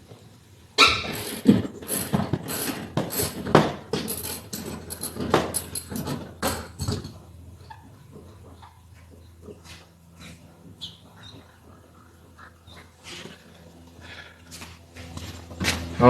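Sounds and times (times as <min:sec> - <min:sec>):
tools clicking and knocking on metal: 0:01.1 - 0:07.4.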